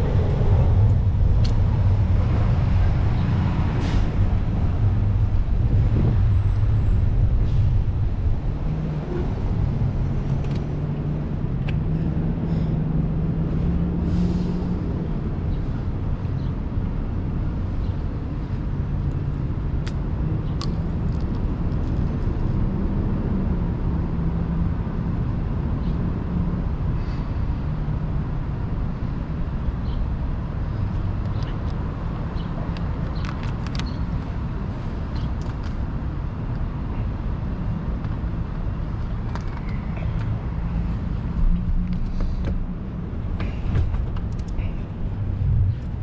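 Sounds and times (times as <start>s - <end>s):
vehicle engine humming: 0.0s - 19.7s, 31.0s - 46.0s
street traffic: 0.0s - 46.0s.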